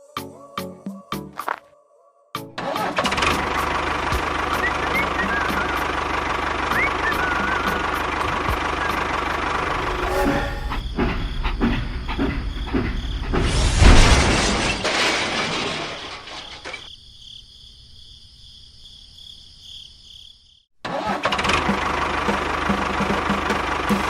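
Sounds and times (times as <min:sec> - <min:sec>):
rhythmic chugging motor: 0:03.2 - 0:13.4
loud rushing noise: 0:09.6 - 0:10.8
thin high whine: 0:09.6 - 0:10.9.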